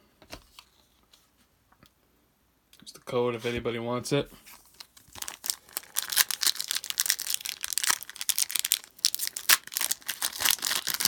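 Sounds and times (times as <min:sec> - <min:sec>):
plastic wrapper crinkling and tearing: 0:04.5 - 0:11.0.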